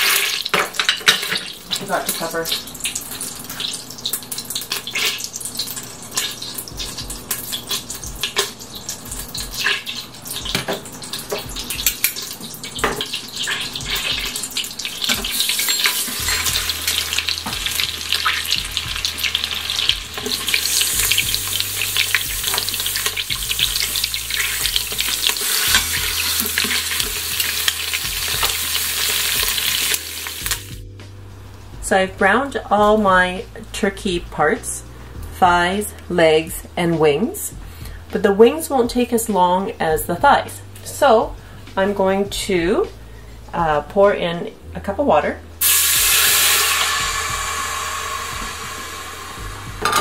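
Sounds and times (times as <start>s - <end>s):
meat sizzling in hot oil: 0.0s - 30.9s, 45.6s - 50.0s.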